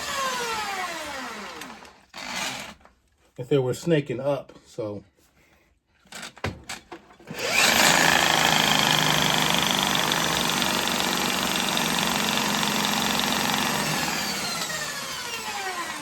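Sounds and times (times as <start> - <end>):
drill spinning with high whine: 0.0 - 2.8, 7.3 - 16.0
drill clicks: 0.0 - 2.9, 7.3 - 16.0.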